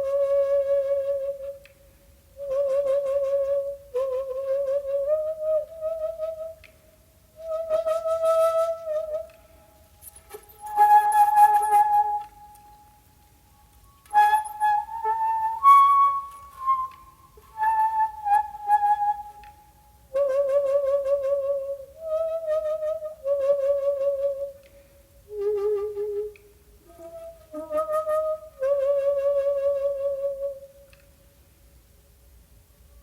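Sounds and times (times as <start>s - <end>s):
bamboo flute playing slow notes: 0.0s - 31.4s.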